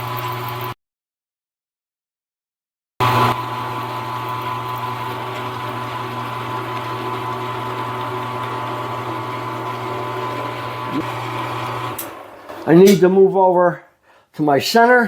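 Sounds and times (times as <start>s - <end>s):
milling machine spindle motor whine: 3.0s - 12.8s.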